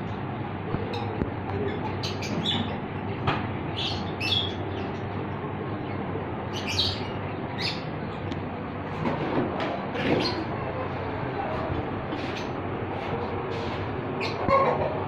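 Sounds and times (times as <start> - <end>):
steady low hum: 0.0 - 15.0
small birds chirping: 0.9 - 2.8, 3.7 - 5.2, 5.8 - 8.3, 14.2 - 14.6.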